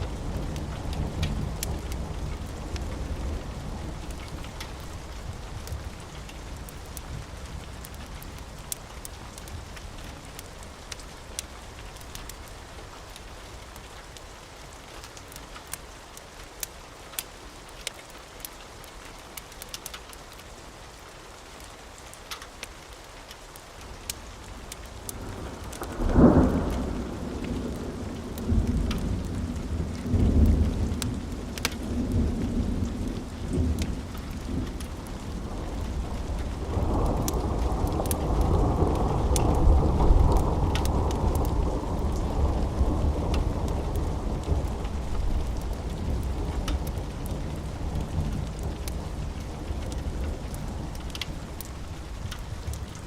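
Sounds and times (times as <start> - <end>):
thunder rumbling: 0.0 - 8.8, 25.1 - 53.0
wood fire crackling: 0.0 - 21.0, 21.6 - 53.0
rain: 0.0 - 53.0.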